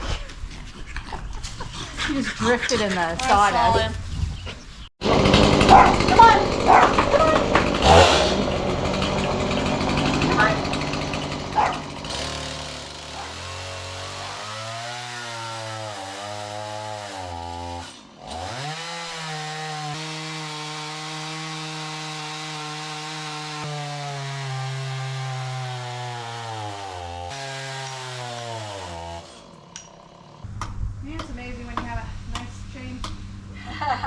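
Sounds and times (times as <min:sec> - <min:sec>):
chainsaw cutting wood: 0:05.0 - 0:30.5.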